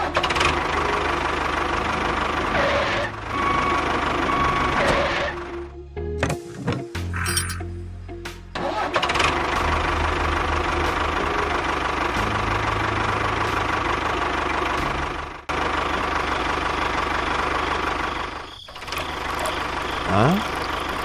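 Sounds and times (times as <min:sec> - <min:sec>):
toy tractor engine running: 0:15.5 - 0:21.0.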